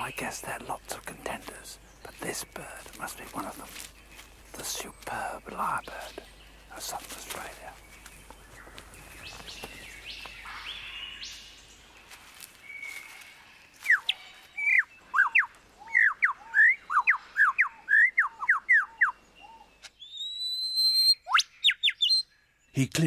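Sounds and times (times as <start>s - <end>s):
faint forest bird calls: 0.0s - 22.9s
lyrebird singing whistled notes: 13.8s - 22.3s.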